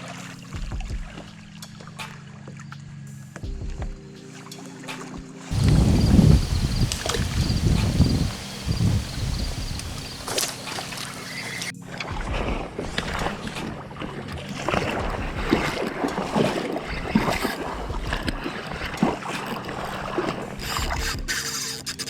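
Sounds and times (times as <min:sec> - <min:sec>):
water splashing around a boat: 0:05.5 - 0:22.0.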